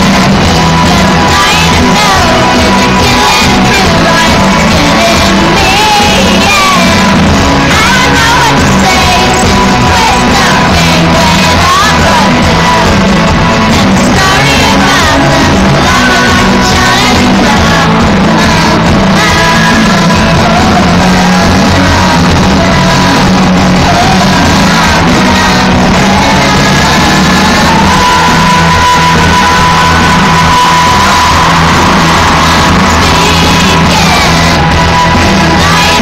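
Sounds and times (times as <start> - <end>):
crowd shouting and singing: 0.0 - 36.0
woman singing with rock band: 0.0 - 36.0.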